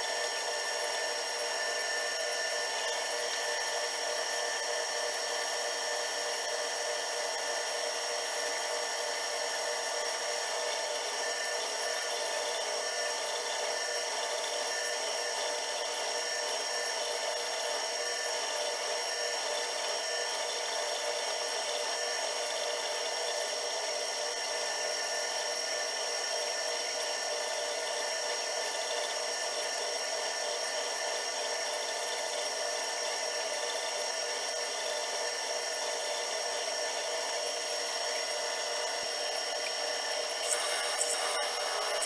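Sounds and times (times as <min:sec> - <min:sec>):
machine tool humming and whining: 0:28.2 - 0:42.0.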